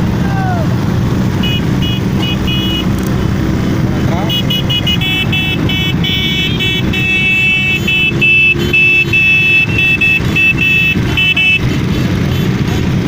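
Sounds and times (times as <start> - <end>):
motorcycle engines rumbling: 0.0 - 13.0
vehicle horn rapid beeps: 1.4 - 3.0, 4.2 - 13.0.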